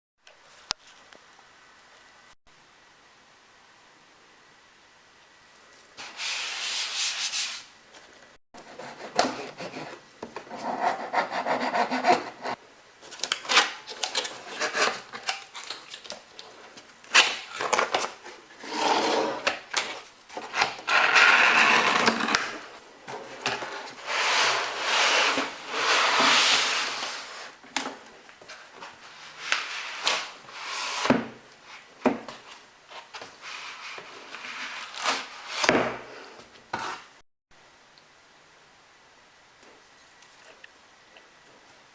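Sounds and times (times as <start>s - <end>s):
packaging scraping and sliding: 8.7s - 27.6s, 28.5s - 31.9s, 32.9s - 35.7s.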